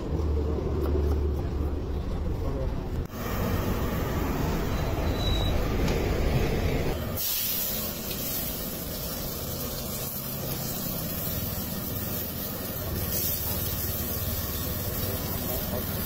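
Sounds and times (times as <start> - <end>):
vegetables sizzling in oil: 6.9 - 16.0.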